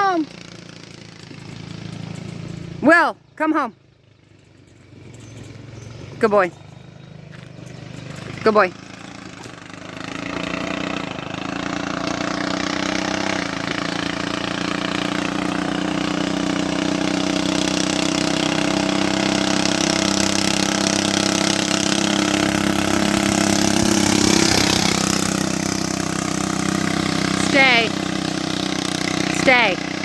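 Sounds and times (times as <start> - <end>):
small gasoline engine running: 0.0 - 30.0.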